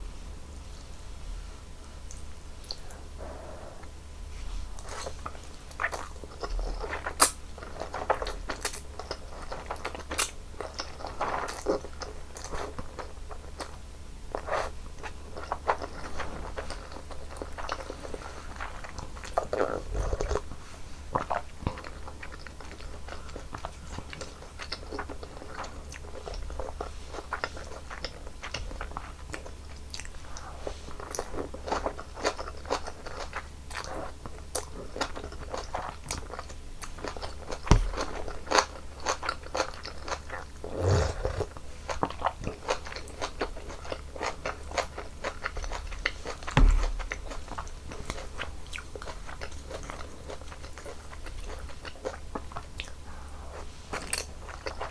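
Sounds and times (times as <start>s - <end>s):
chewing noodles: 4.8s - 54.9s
dull thumps: 37.6s - 38.3s, 46.5s - 47.5s.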